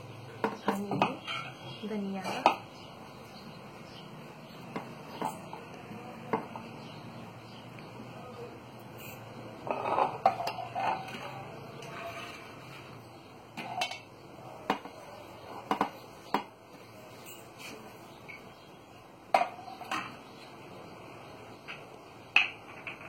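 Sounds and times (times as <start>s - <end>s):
kitchen utensils knocking and clinking: 0.3s - 2.7s, 4.7s - 5.7s, 9.0s - 15.0s, 15.6s - 16.6s, 19.3s - 20.3s, 21.6s - 23.0s.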